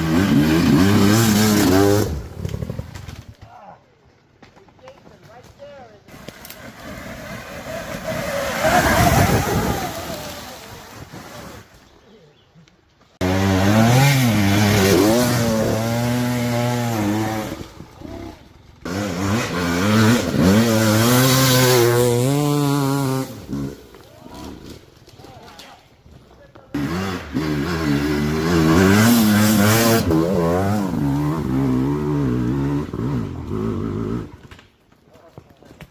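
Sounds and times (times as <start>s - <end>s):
dirt bike engine revving: 0.0s - 2.9s, 7.0s - 11.6s, 13.2s - 24.8s, 26.7s - 34.4s.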